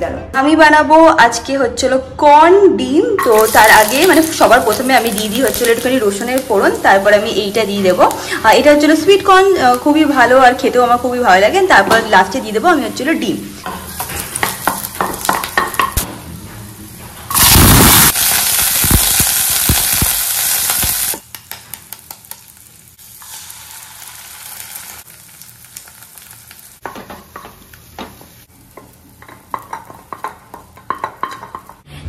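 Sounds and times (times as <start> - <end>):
corn sizzling in hot oil: 3.3 - 12.4, 17.3 - 31.8.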